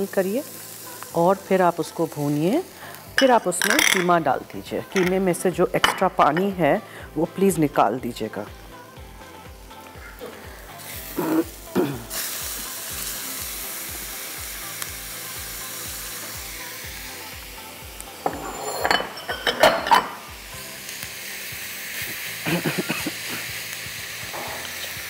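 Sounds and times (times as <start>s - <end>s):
meat sizzling in a wok: 0.0s - 25.0s
spoon and spatula scraping: 18.3s - 20.2s.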